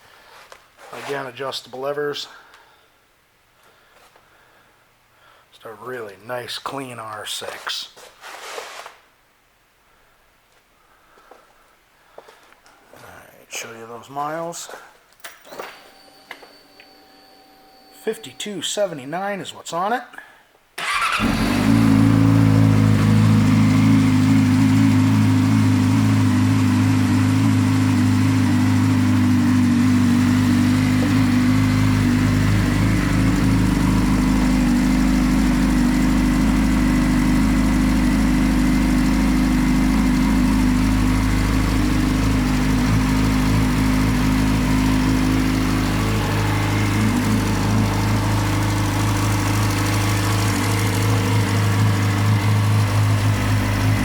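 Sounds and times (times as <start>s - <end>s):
motorcycle engine idling: 20.8s - 54.0s.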